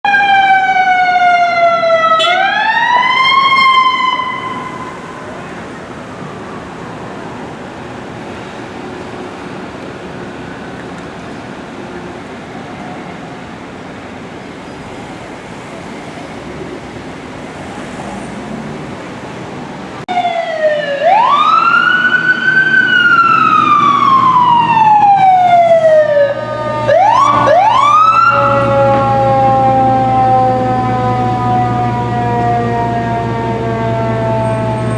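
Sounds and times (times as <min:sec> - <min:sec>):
emergency vehicle siren wailing: 0:00.0 - 0:34.9
street traffic noise: 0:00.0 - 0:34.9.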